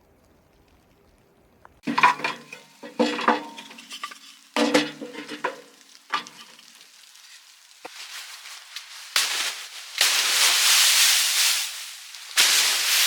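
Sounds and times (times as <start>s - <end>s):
metal utensil scraping metal pan: 1.8s - 7.5s.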